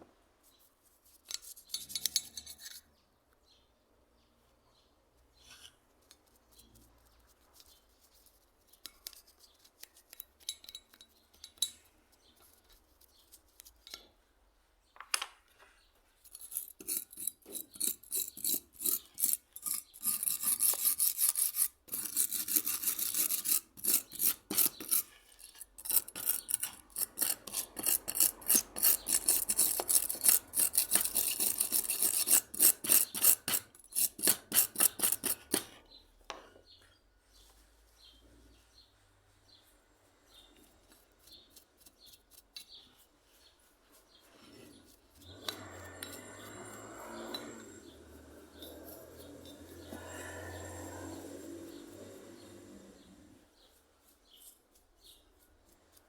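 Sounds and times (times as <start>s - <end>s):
hand rubbing abrasive on metal: 16.3s - 35.8s, 40.4s - 56.0s.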